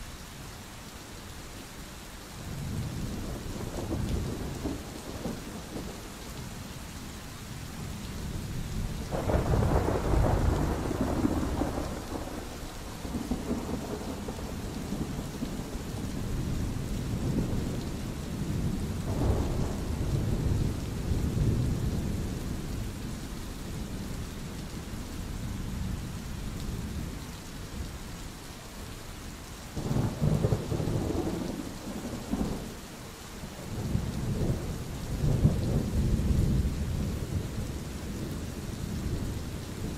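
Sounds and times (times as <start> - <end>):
steady rain: 0.0 - 39.9
thunder rolling: 9.0 - 15.7.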